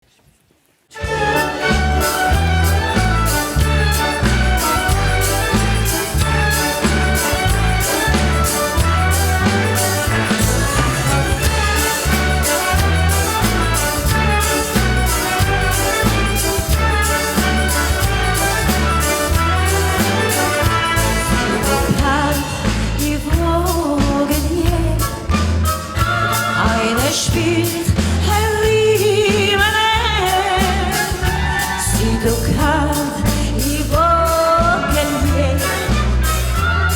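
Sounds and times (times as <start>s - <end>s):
orchestra playing: 1.0s - 36.9s
pulsing bass beat: 1.3s - 23.9s.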